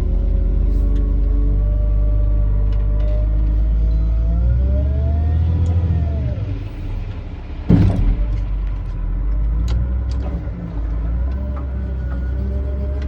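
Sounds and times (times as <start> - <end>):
excavator engine running: 0.0 - 13.0
knocks: 7.7 - 8.5
loud bang: 7.7 - 8.6.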